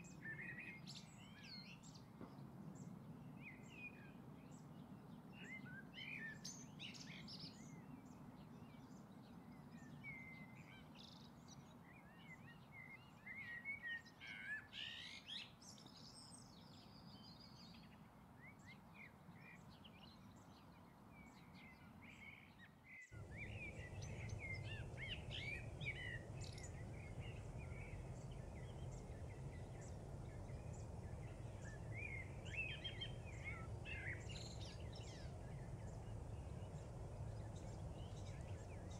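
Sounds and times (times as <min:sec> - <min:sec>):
low steady background hum: 0:00.0 - 0:38.9
birds chirping: 0:23.2 - 0:38.9.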